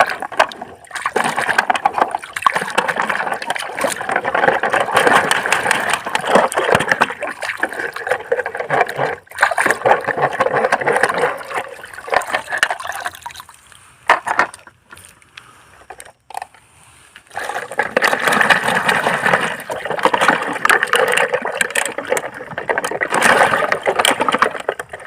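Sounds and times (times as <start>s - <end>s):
water splashing and sloshing: 0.0s - 25.0s
plastic toys knocking: 17.5s - 25.0s.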